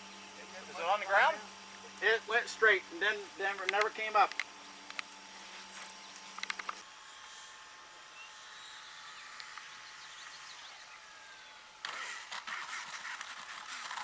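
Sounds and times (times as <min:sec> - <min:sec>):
rustling clicking noise: 0:03.6 - 0:05.1, 0:06.2 - 0:06.8, 0:11.8 - 0:14.0.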